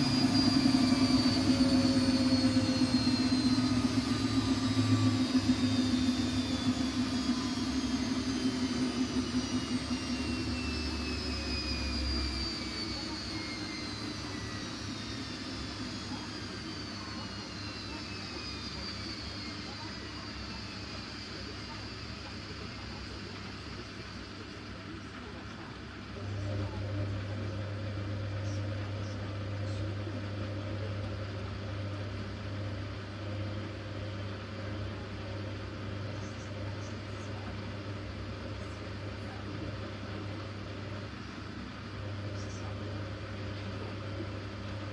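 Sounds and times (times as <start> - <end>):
motor whining: 0.0 - 24.2
washing machine spinning: 0.0 - 44.9.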